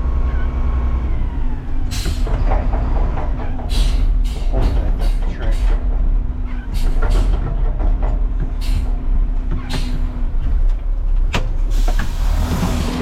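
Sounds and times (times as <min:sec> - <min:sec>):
garbage truck diesel engine: 0:00.0 - 0:13.0.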